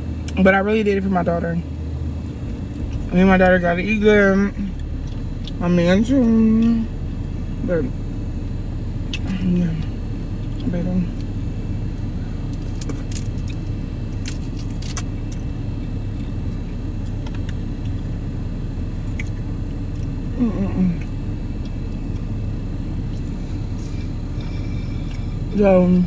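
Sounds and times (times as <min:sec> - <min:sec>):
low background rumble: 0:00.0 - 0:26.0
person humming: 0:20.3 - 0:21.1.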